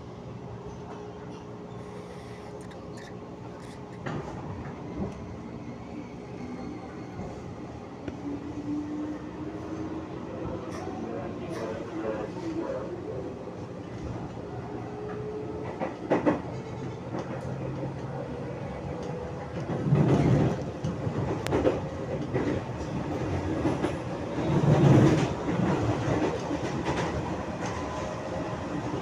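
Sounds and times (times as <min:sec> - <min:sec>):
train running rumble: 0:15.0 - 0:29.0.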